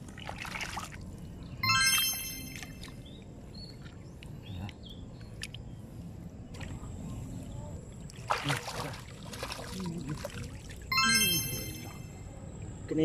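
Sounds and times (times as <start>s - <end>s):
shallow water sloshing: 7.9s - 10.9s
mud squelching: 8.1s - 10.9s
loud wet splashing: 8.2s - 10.9s.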